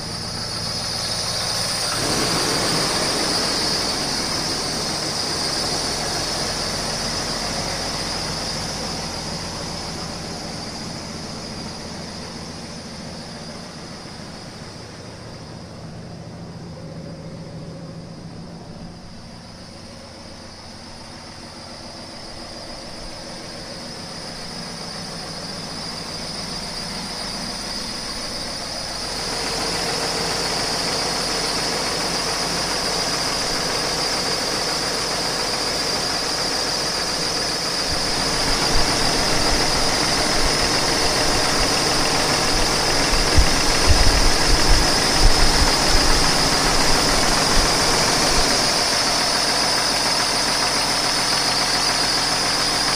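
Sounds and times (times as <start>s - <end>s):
diesel truck engine running: 0.0s - 52.9s
steady high whine: 0.0s - 52.9s.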